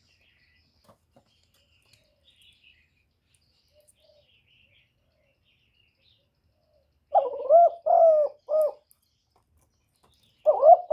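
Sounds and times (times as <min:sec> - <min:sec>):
small birds chirping: 0:00.0 - 0:10.9
dove cooing: 0:07.1 - 0:08.8, 0:10.5 - 0:10.9.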